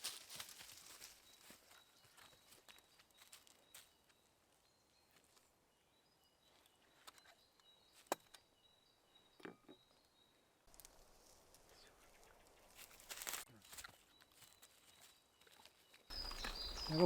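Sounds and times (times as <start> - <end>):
faint high-pitched chirps: 14.2 - 17.0.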